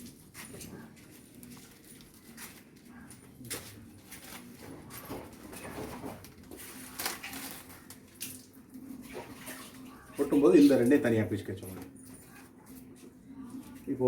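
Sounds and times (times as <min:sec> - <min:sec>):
wrapper rustling and crinkling: 0:00.0 - 0:08.8.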